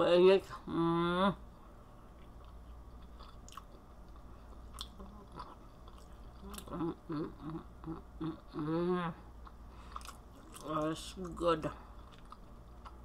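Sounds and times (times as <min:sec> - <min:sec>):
person chewing food: 0:02.1 - 0:08.5, 0:09.3 - 0:13.0
person humming mm: 0:06.4 - 0:09.3.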